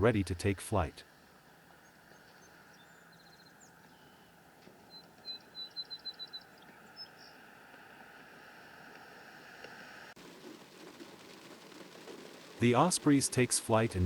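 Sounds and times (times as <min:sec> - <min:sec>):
bird chirping: 0:01.8 - 0:07.5
faint rain hiss: 0:06.5 - 0:14.0.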